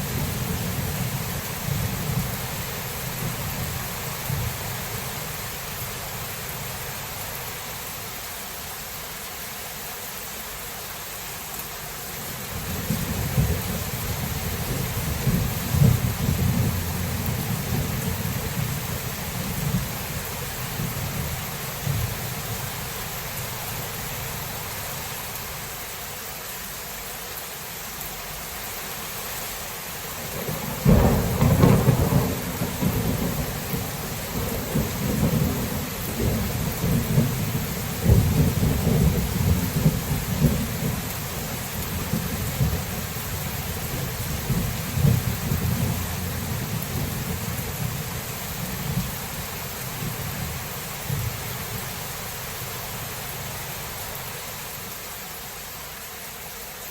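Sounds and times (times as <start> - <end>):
steady rain: 0.0 - 56.9
thunder rumbling: 12.5 - 22.8, 30.2 - 54.0
loud thunderclap: 30.4 - 41.0.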